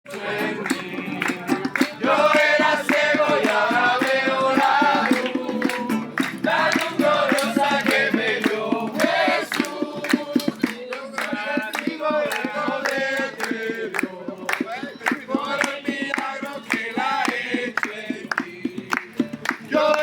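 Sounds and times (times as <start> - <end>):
fast percussive beat: 0.1 - 20.0
group singing: 0.1 - 20.0.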